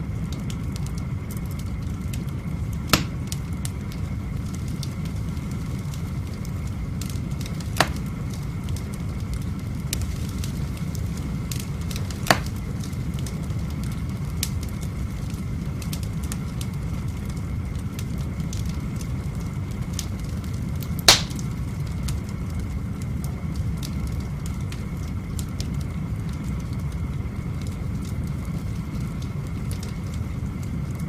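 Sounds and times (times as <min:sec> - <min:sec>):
fire low rumble: 0:00.0 - 0:31.0
wood fire crackling: 0:00.0 - 0:31.0
fire sharp pops: 0:01.8 - 0:17.5, 0:20.0 - 0:22.7.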